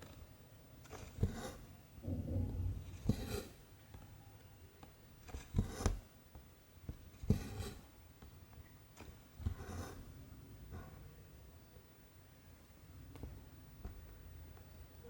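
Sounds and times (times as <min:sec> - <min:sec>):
thread rasping through fabric: 0:00.8 - 0:03.6, 0:05.2 - 0:06.1, 0:06.9 - 0:07.9, 0:09.0 - 0:10.1.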